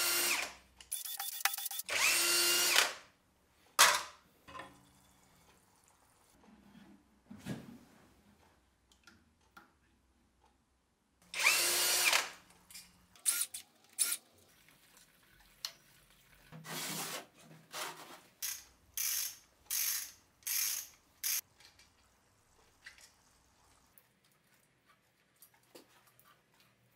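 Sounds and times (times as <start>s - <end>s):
power driver whirring: 0.0s - 3.0s, 11.4s - 12.4s
short ratcheting bursts: 0.9s - 2.3s, 13.2s - 14.2s, 18.4s - 21.4s.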